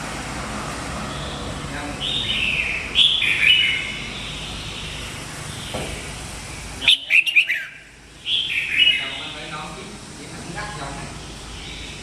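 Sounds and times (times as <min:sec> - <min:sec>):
bird singing warbled phrase: 0:01.1 - 0:05.8, 0:06.8 - 0:09.7.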